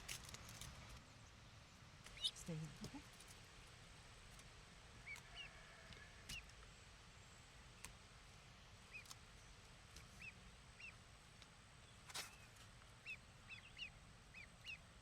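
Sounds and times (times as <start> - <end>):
young waterfowl peeping: 2.1 - 3.4, 4.3 - 6.7, 7.5 - 15.0.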